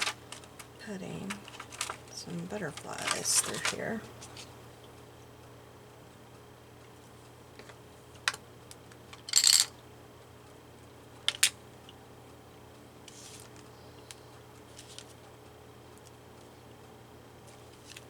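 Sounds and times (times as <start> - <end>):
paper rustling: 2.7 - 4.5, 13.1 - 13.7, 14.6 - 15.2, 17.5 - 18.0.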